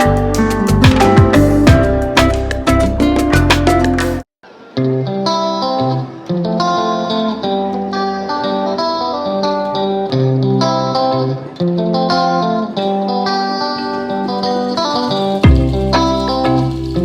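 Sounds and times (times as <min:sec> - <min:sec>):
bass line with steady beat: 0:00.0 - 0:04.2, 0:15.4 - 0:17.0
plucked guitar melody: 0:00.0 - 0:17.0.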